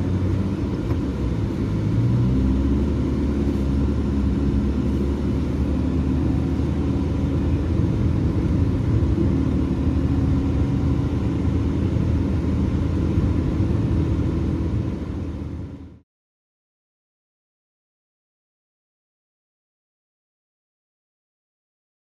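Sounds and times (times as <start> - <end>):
car engine and road drone: 0.0 - 16.0.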